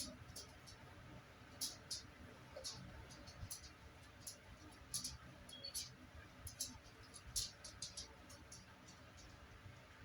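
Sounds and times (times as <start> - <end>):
raindrops ticking on hard surface: 1.6 - 9.4.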